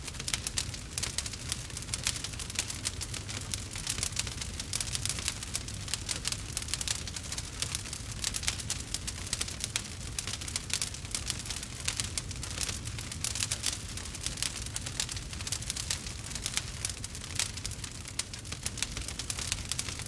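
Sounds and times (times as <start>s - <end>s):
low fire rumble: 0.0s - 20.0s
wood fire crackling: 0.0s - 20.0s.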